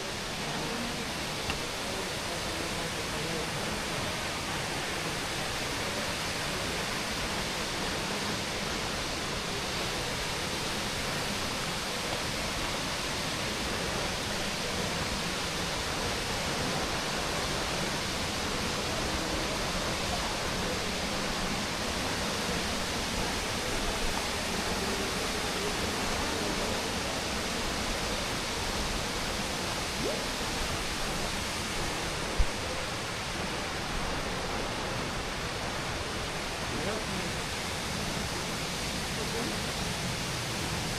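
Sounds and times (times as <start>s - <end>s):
flowing water rushing: 0.0s - 40.9s.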